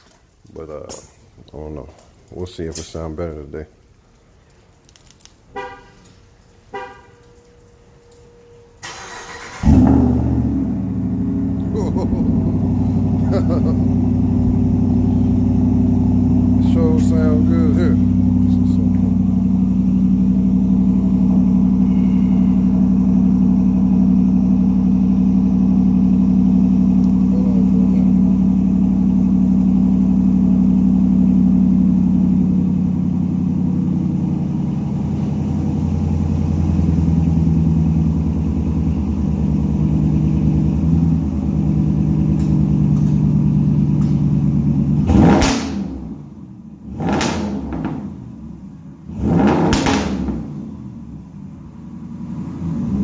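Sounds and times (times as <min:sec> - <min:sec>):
truck exhaust rumbling at idle: 0:09.6 - 0:53.0.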